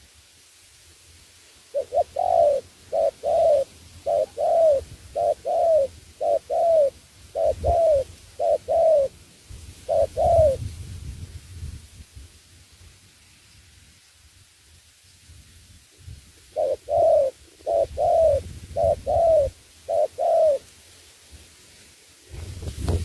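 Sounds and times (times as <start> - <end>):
dove cooing: 1.7 - 9.2, 9.8 - 10.6, 16.5 - 20.6.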